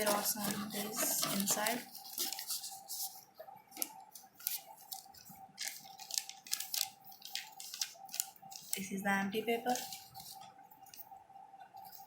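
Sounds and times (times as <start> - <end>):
packaging crackling and clicking: 0.0 - 2.7, 3.8 - 8.9.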